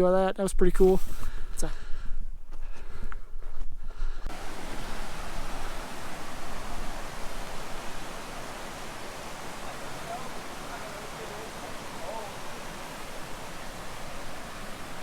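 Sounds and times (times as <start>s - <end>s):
low wind rumble: 3.7s - 15.0s
rushing water hiss: 4.3s - 15.0s.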